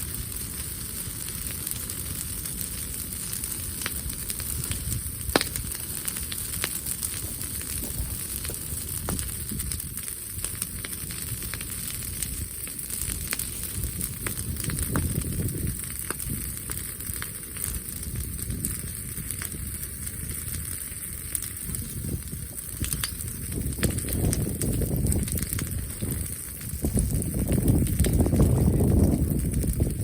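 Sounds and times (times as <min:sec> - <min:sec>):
bonfire crackling and popping: 0:00.0 - 0:30.0
low fire rumble: 0:00.0 - 0:30.0.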